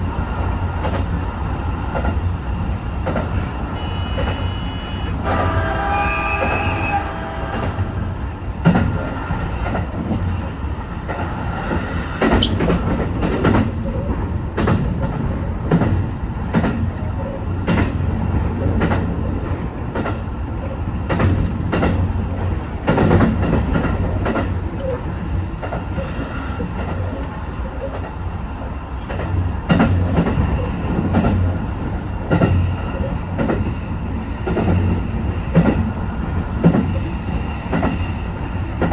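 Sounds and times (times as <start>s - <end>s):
train running on track: 0.0s - 38.9s
wheels clicking over rail joints: 8.6s - 28.3s.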